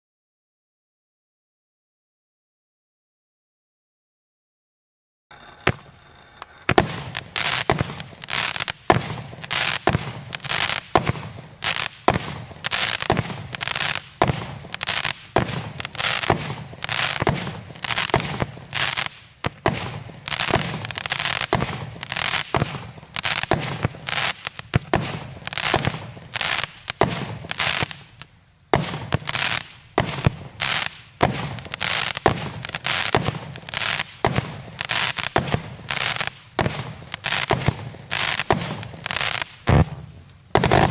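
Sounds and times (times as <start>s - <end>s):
fireworks aerial bursts: 5.3s - 40.9s
fireworks crackling: 5.3s - 40.9s
fireworks launch reports: 5.3s - 40.9s.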